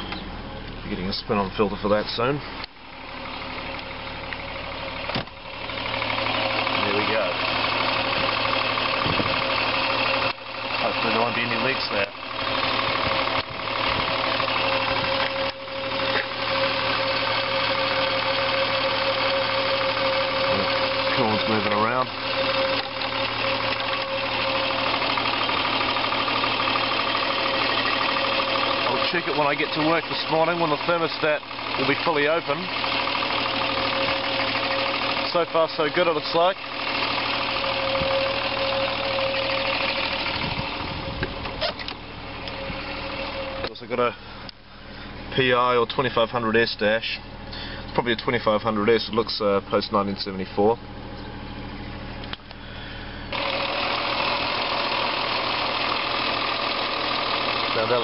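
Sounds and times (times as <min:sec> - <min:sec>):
steady whine: 0:00.0 - 0:46.0
car engine idling: 0:00.0 - 0:58.0.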